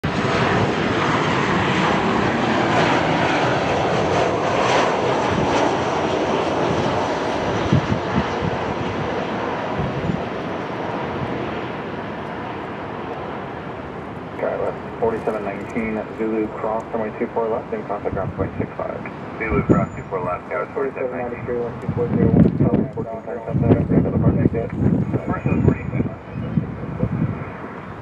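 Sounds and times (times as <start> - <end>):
jet engines roaring past: 0.0 - 28.0.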